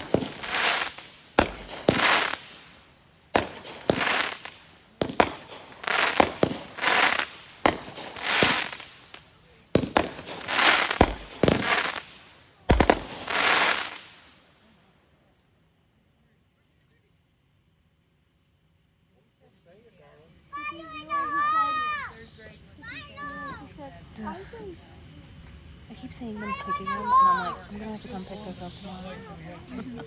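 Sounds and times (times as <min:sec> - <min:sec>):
fireworks launching and bursting: 0:00.0 - 0:14.4.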